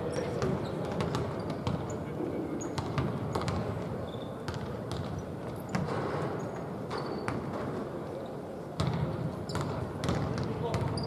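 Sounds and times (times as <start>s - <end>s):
background noise: 0.0s - 11.0s
basketball bouncing on court: 0.4s - 2.0s, 2.8s - 6.2s, 8.8s - 11.0s.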